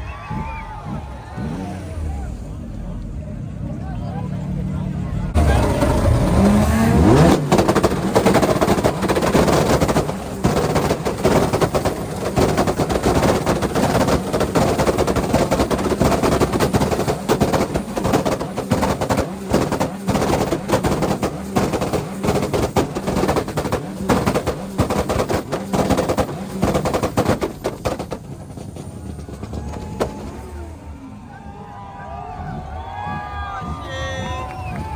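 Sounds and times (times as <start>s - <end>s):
car engine revving: 0.1s - 34.9s
exhaust crackling pops: 5.3s - 31.2s.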